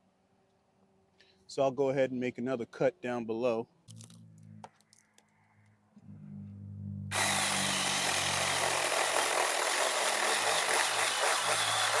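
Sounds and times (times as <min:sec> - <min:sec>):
chainsaw cutting wood: 0:07.1 - 0:12.0
electric chainsaw motor hum: 0:07.1 - 0:12.0.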